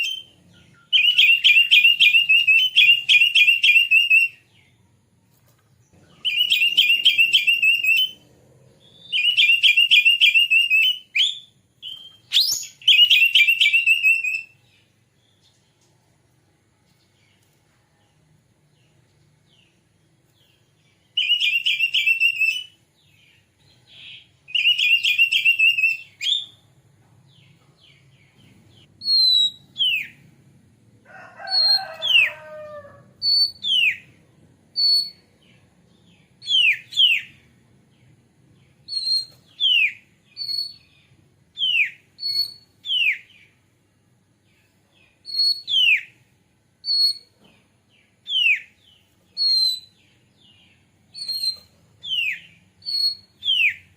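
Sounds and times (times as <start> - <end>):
harsh lower bird call: 0.0 - 4.6, 31.1 - 34.1
bird singing buzzy trills and whistles: 0.0 - 4.8, 5.9 - 8.2, 8.8 - 14.8, 20.5 - 26.7, 27.4 - 30.3, 33.2 - 34.1, 34.7 - 37.5, 38.6 - 43.6, 45.0 - 46.2, 46.8 - 47.4, 48.1 - 53.9.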